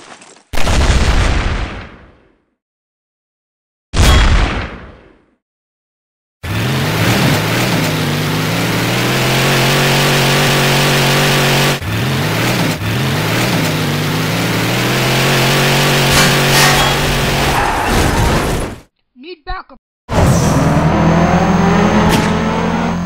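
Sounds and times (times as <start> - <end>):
car engine revving: 6.4 - 17.8, 20.1 - 23.0.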